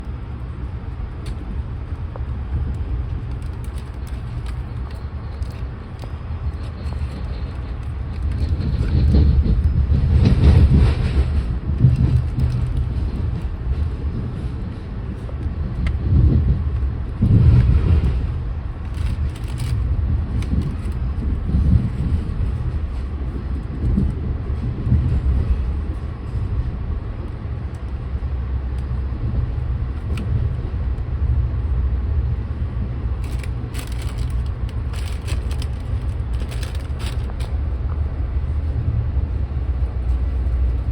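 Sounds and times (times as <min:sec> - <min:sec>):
vehicle running rumble: 0:00.0 - 0:40.9
sharp clicks and rattles: 0:01.2 - 0:14.0, 0:15.7 - 0:22.2, 0:33.2 - 0:37.6.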